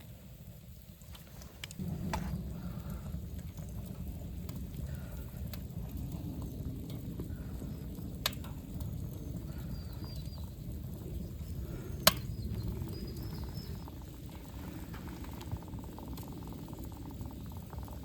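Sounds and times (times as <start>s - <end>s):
fire popping: 0.0s - 18.0s
wood fire burning: 0.0s - 18.0s
birds chirping faintly: 7.2s - 18.0s.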